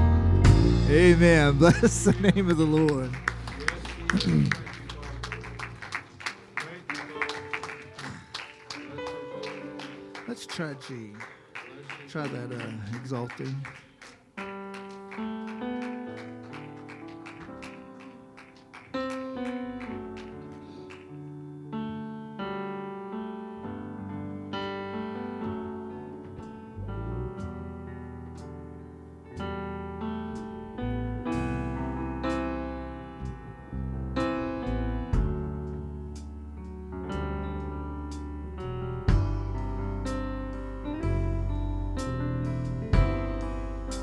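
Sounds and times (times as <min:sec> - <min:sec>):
deep bass: 0:00.0 - 0:05.8, 0:26.8 - 0:27.8, 0:29.8 - 0:44.0
electric piano chords: 0:00.0 - 0:44.0.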